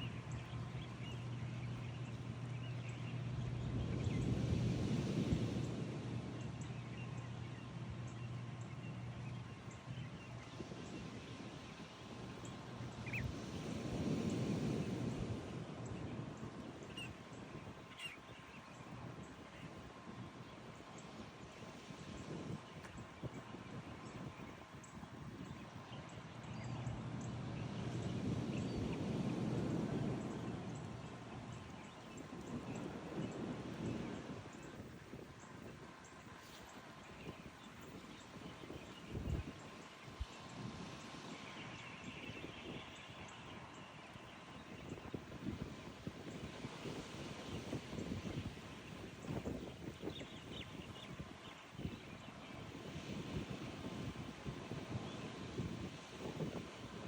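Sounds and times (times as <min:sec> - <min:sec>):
faint bird chirps: 0:12.9 - 0:13.4, 0:16.8 - 0:19.8.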